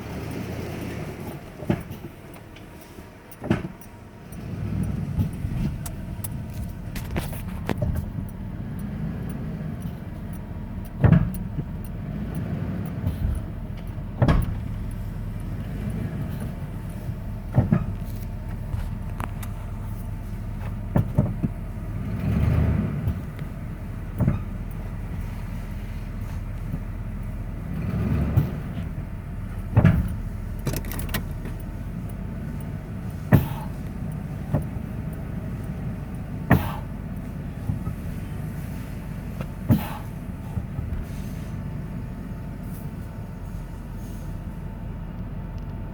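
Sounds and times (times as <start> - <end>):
truck engine humming: 0.0 - 45.9
sharp clunks: 3.4 - 3.8, 10.9 - 11.7, 13.0 - 15.0, 17.5 - 19.6, 20.6 - 21.6, 24.1 - 24.6, 28.2 - 31.6, 33.2 - 33.8, 36.4 - 37.0, 39.3 - 41.1.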